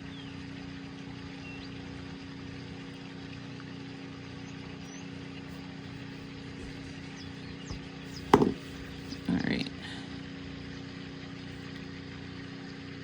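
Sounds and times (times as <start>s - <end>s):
steady mechanical hum with hiss: 0.0s - 13.0s.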